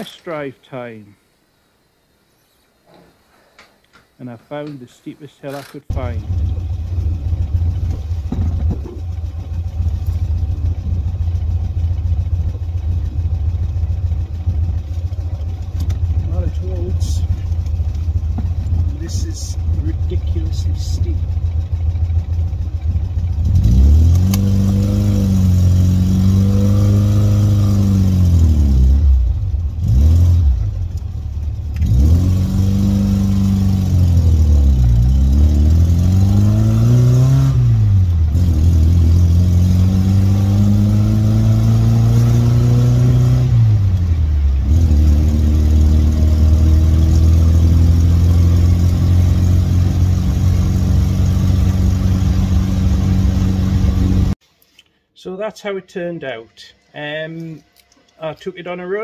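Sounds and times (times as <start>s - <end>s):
car engine pulling under load: 19.6s - 54.4s.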